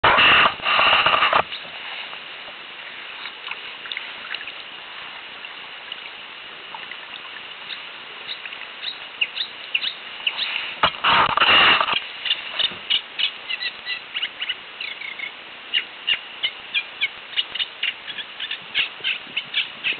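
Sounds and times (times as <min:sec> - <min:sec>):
loud rushing noise: 0:00.0 - 0:01.4, 0:10.8 - 0:12.0.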